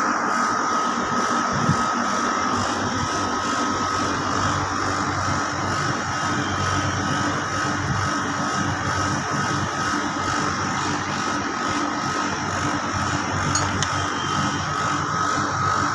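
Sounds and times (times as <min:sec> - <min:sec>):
air conditioner compressor humming: 0:00.0 - 0:15.9
high thin whine: 0:13.2 - 0:14.9.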